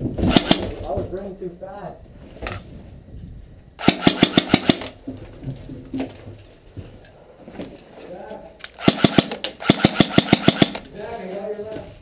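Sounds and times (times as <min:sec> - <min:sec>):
airsoft gun rapid burst: 0:00.2 - 0:00.6, 0:03.8 - 0:05.0, 0:08.8 - 0:10.8.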